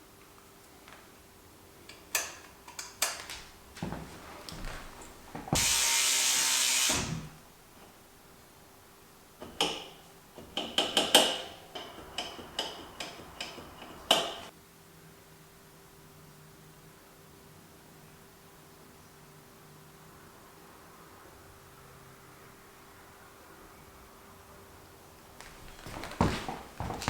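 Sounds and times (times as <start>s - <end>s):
steady hiss: 5.0s - 7.4s
metal clicks and knocks: 9.4s - 14.5s.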